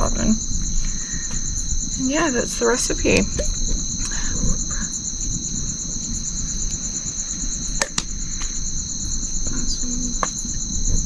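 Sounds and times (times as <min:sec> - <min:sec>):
insects trilling: 0:00.0 - 0:11.0
sharp click: 0:07.8 - 0:08.1.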